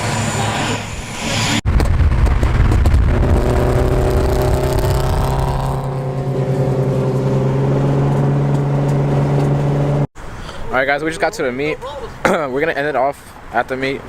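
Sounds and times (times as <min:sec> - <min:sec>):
car engine running: 0:01.7 - 0:10.1.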